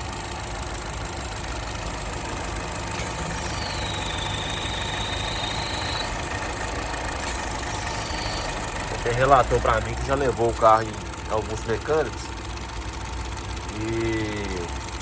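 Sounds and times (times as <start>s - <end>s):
car engine idling: 0.0s - 15.0s
thin high air whistle: 3.0s - 6.2s, 7.8s - 8.6s.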